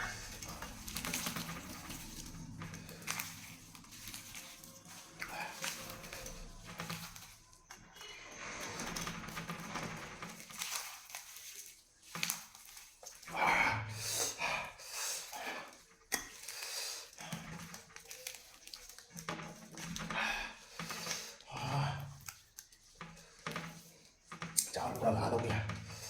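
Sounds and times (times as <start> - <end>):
person chewing and crunching: 0.0 - 7.7.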